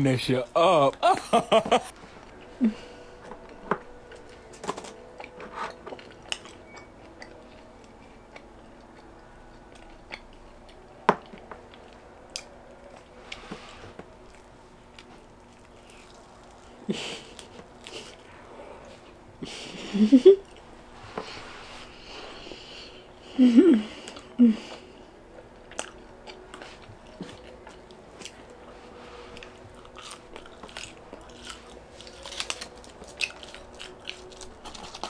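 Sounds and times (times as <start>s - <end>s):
chewing mouth sounds: 25.7s - 28.4s, 29.3s - 35.0s
crust crackling as pulled apart: 30.6s - 35.0s.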